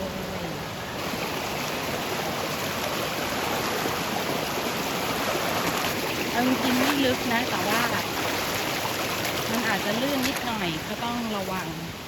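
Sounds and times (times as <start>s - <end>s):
stream flowing over rocks: 0.0s - 12.0s.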